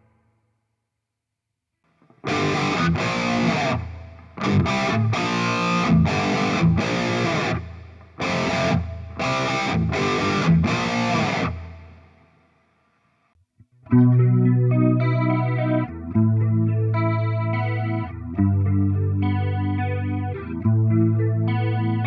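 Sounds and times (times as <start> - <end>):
distorted electric guitar chord strums: 2.1 - 12.2, 13.9 - 22.0.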